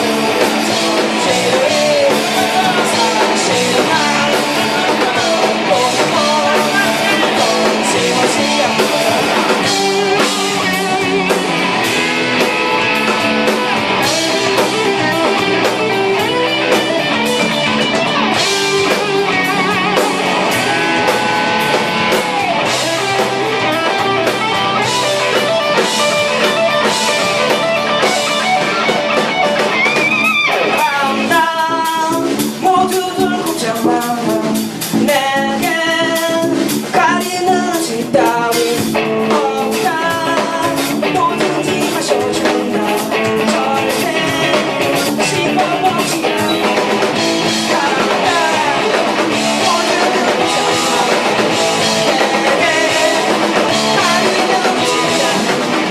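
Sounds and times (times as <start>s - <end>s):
drum kit: 0.0s - 55.9s
electric guitars: 0.0s - 55.9s.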